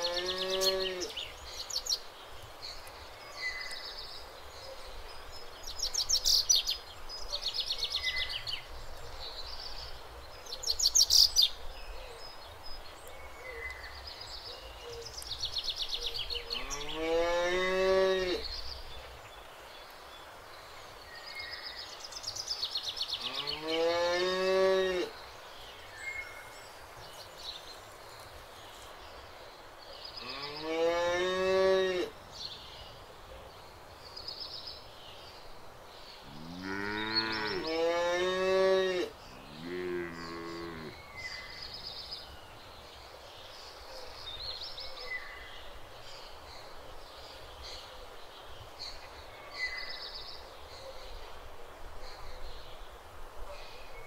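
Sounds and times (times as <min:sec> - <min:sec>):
cow mooing: 0:36.3 - 0:41.0.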